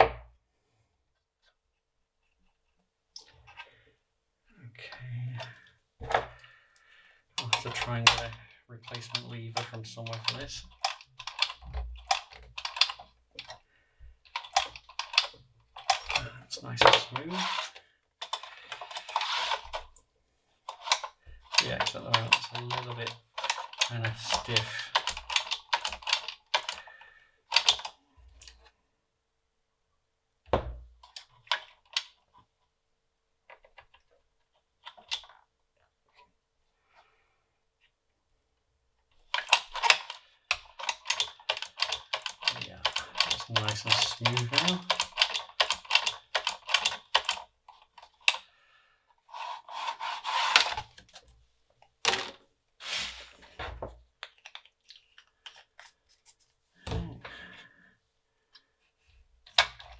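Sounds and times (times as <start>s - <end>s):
mechanism clicks: 39.3s - 47.4s
scraping rubs: 49.3s - 50.8s, 52.8s - 53.6s.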